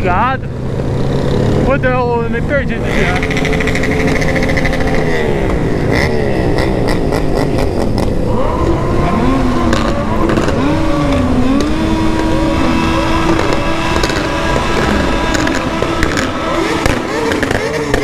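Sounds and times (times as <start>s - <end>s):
motorcycles revving: 0.0s - 18.0s
exhaust pops and crackles: 3.1s - 5.6s, 9.6s - 18.0s.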